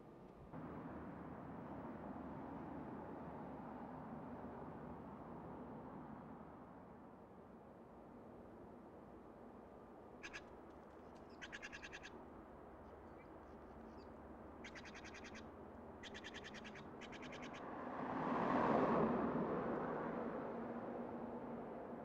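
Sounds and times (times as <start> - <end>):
bird trilled calls: 11.3 - 12.1, 14.6 - 15.4, 16.0 - 17.6
passing car: 17.6 - 22.0.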